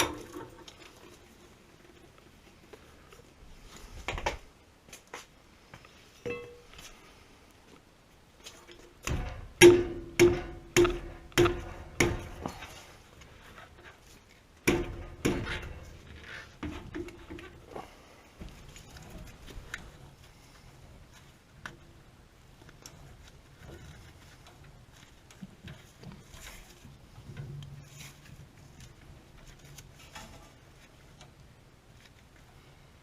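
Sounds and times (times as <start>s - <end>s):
metal struck with ringing knocks: 6.3s - 6.7s, 9.0s - 12.5s.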